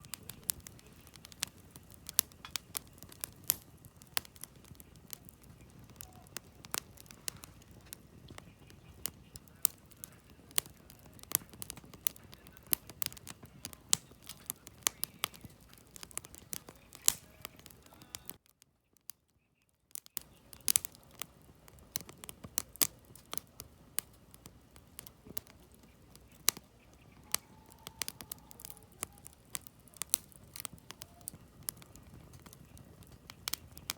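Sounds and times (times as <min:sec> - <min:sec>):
campfire crackling: 0:00.0 - 0:33.9.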